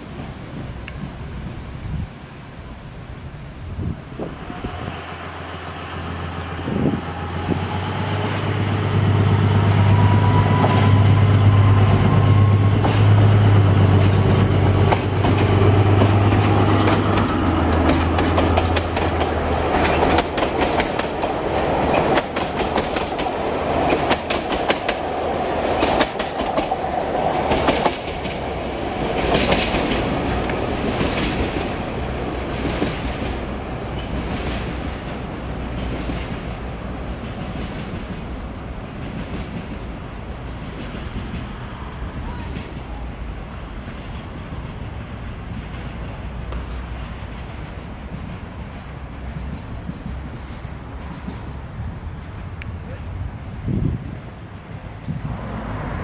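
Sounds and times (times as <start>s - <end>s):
diesel locomotive engine drone: 0.0s - 56.0s
train wheels clicking over rail joints: 10.5s - 41.7s, 43.5s - 52.8s.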